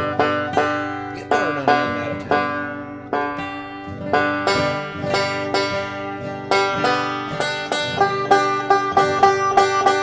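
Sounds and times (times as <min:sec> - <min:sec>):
banjo notes plucked: 0:00.0 - 0:10.0.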